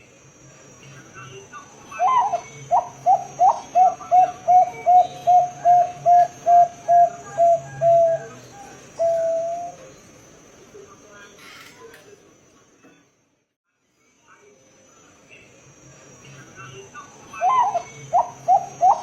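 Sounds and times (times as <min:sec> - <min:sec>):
dove cooing: 0:01.9 - 0:09.9, 0:17.4 - 0:19.0.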